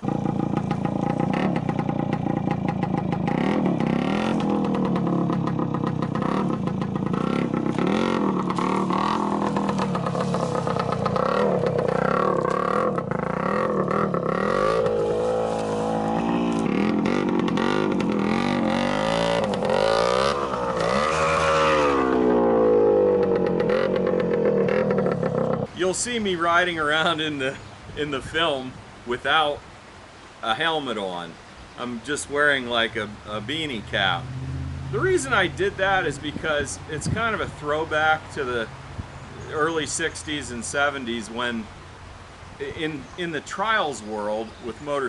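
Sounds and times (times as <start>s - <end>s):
motorcycle engine revving: 0.0s - 25.7s, 33.2s - 40.0s.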